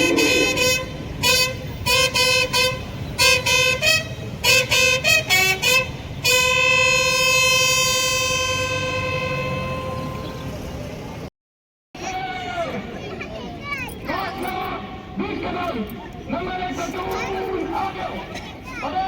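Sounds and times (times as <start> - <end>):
horn blasts: 0.0 - 10.7.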